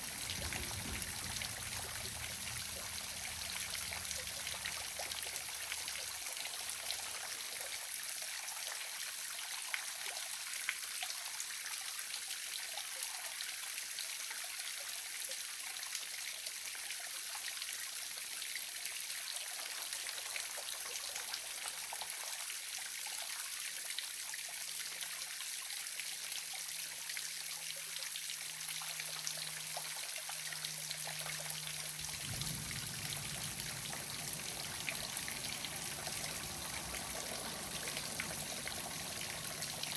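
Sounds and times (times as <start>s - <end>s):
faint low hum: 0.0s - 6.1s, 28.6s - 39.9s
water trickling and splashing: 0.0s - 39.9s.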